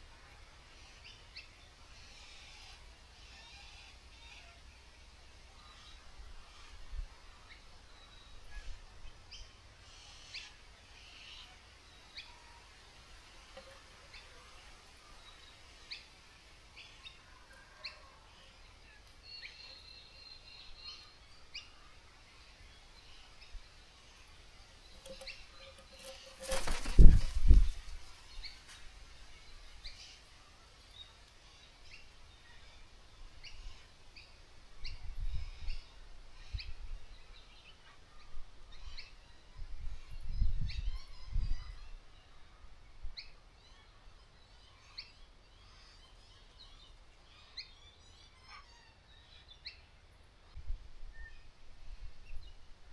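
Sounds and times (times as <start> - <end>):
birds chirping: 7.5 - 39.2.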